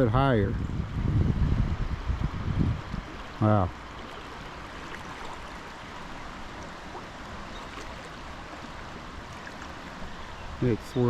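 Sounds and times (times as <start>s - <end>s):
water rushing in a creek: 0.0s - 11.0s.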